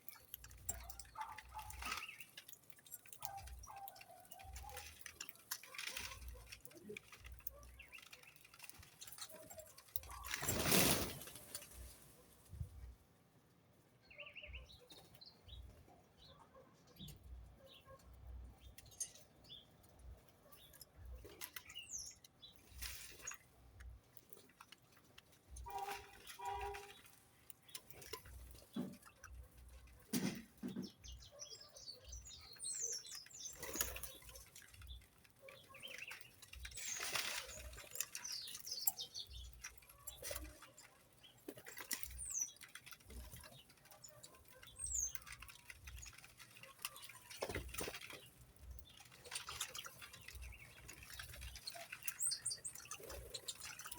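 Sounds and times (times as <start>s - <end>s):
wing flaps: 4.5s - 12.2s
bird chirps: 14.0s - 18.0s, 30.6s - 53.9s.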